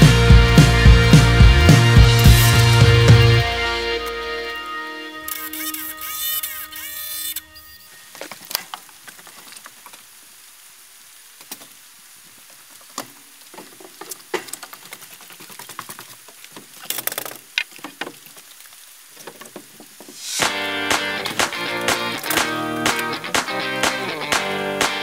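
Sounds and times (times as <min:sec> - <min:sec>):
outdoor background hiss: 0:00.1 - 0:25.0.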